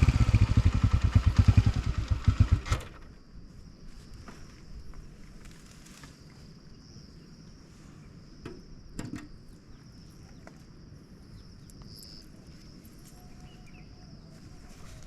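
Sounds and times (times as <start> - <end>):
crickets trilling: 0.1 - 15.0.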